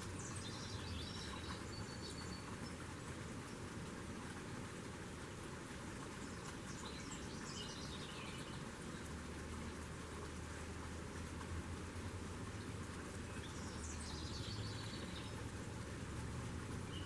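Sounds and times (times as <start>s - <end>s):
small birds chirping: 0.1s - 2.9s, 6.2s - 9.2s, 13.1s - 15.7s, 16.8s - 17.0s.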